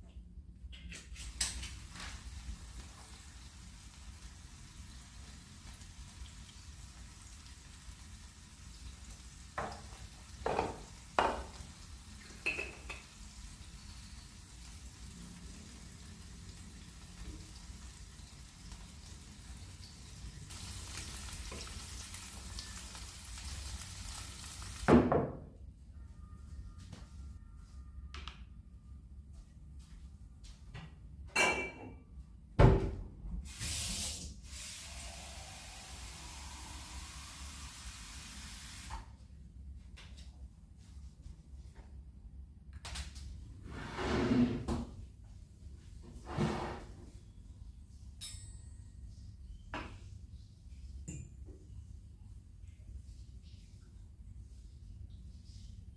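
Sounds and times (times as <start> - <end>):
steady hiss: 33.5 - 39.0
kitchenware clattering scrapes: 46.2 - 47.0
light clink: 48.2 - 48.9.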